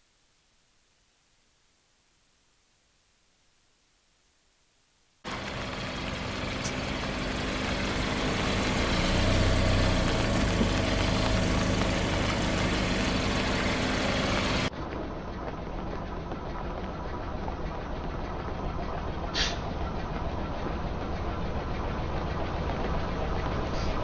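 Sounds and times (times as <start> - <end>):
car engine running: 5.2 - 24.0.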